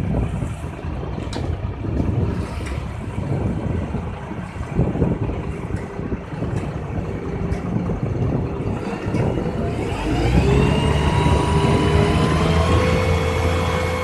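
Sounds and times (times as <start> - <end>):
diesel truck engine revving: 6.4 - 14.0.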